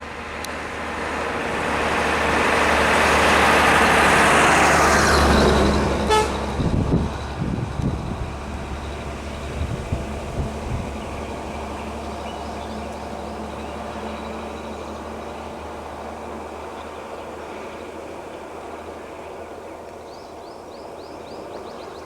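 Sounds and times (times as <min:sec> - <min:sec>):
low rumbling: 0:00.0 - 0:16.9
road vehicle passing: 0:00.0 - 0:22.0
short horn toot: 0:06.0 - 0:06.5.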